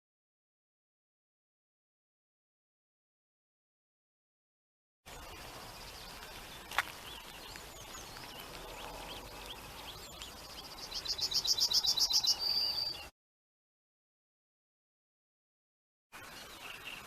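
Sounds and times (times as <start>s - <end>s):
songbirds singing and chirping: 5.1s - 13.1s, 16.2s - 17.0s.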